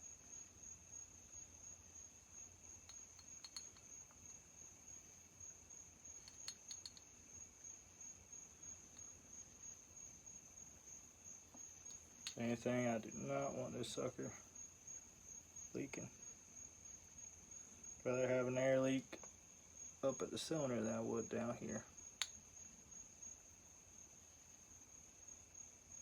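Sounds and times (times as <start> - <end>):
faint high-pitched whine: 0.0 - 26.0
light clicks of parts handled: 2.9 - 4.4, 6.2 - 7.1.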